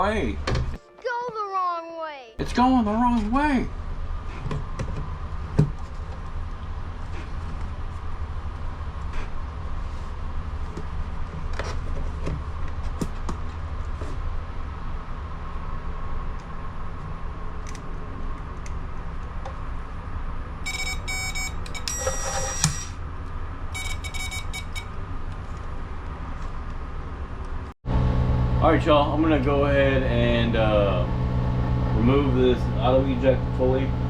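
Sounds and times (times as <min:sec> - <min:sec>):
vehicle engine idling: 0:27.8 - 0:34.0.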